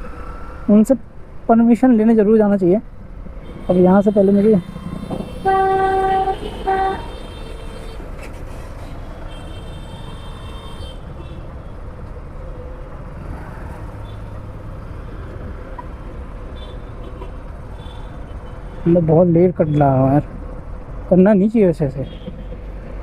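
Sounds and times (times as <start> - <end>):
wind and road noise: 0.0 - 23.0
motorcycle engine rumble: 3.5 - 7.3
faint horn toot: 3.5 - 8.2.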